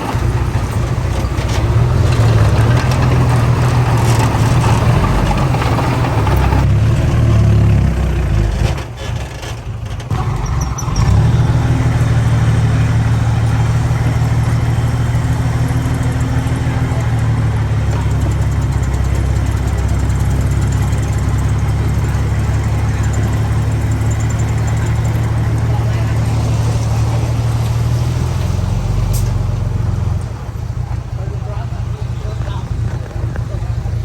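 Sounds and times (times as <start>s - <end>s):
heavy machine diesel engine: 0.0s - 34.0s.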